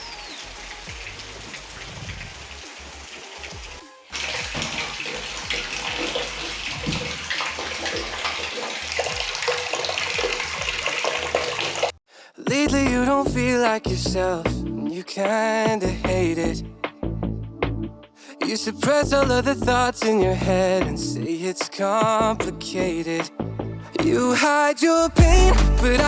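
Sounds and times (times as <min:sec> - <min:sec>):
steady rain: 0:00.0 - 0:12.0
tap water running and splashing: 0:00.4 - 0:12.0.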